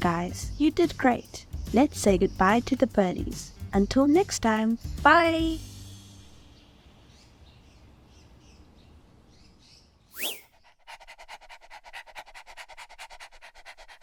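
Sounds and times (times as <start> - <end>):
faint bird chirps: 6.3 - 10.8
cartoon whoosh: 10.2 - 10.5
dog panting: 10.3 - 14.0.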